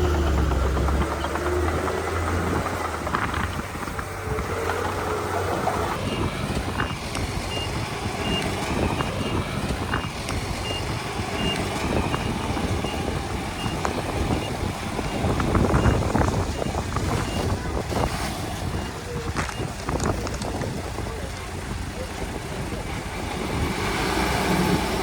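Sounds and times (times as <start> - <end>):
bulldozer diesel engine running: 0.0 - 25.0
track and blade clatter: 0.0 - 25.0
reversing alarm beeping: 5.1 - 17.5.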